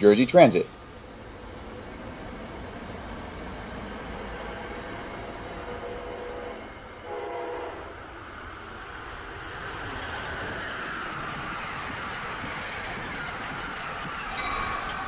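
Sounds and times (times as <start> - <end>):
train wheels rushing on rails: 0.0 - 15.0
train horn: 5.6 - 8.0.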